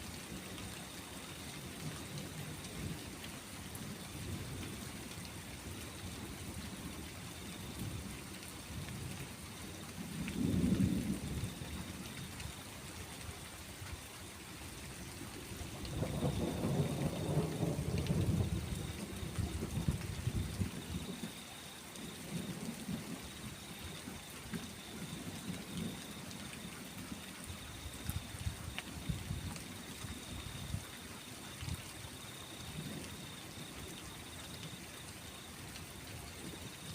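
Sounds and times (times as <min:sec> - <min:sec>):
steady rain: 0:00.0 - 0:36.9
rolling thunder: 0:15.9 - 0:20.9.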